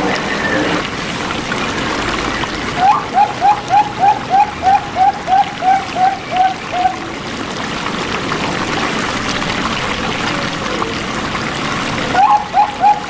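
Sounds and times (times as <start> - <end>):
flowing water: 0.0 - 13.0
dove cooing: 2.8 - 7.0, 12.1 - 13.0.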